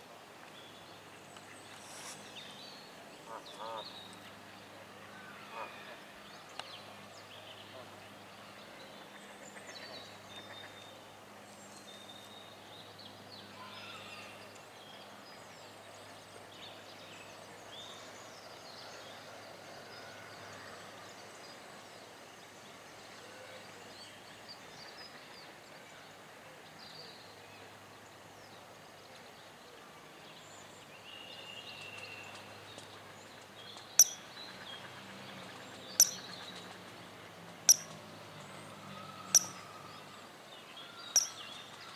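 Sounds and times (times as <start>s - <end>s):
bird chirps: 34.0s - 34.4s, 36.0s - 36.5s, 37.7s - 38.0s, 39.3s - 39.8s, 41.1s - 41.7s.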